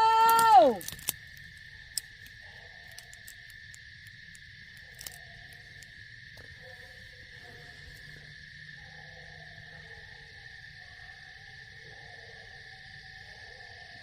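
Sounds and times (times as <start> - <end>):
sharp clicks: 0.0 - 5.9
crickets trilling: 0.0 - 14.0
faint distant calls: 0.0 - 14.0.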